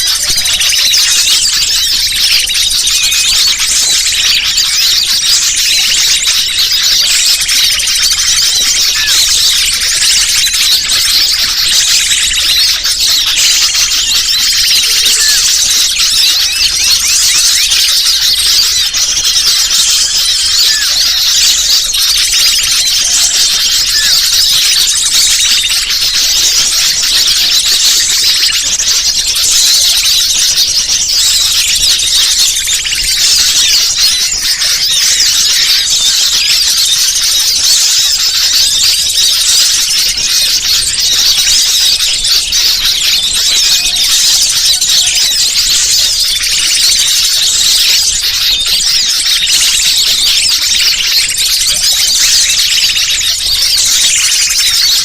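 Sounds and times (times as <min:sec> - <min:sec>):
birds chirping and twittering: 0:00.0 - 0:55.0.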